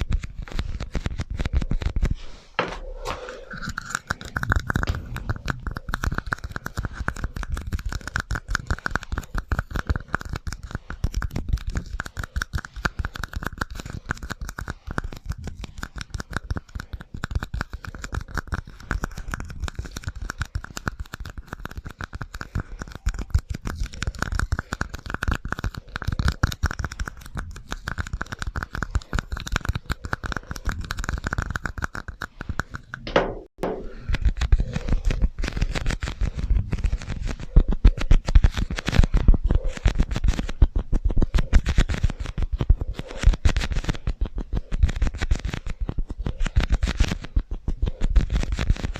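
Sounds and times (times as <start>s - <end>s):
scratching and tapping with echo: 0.0s - 48.9s.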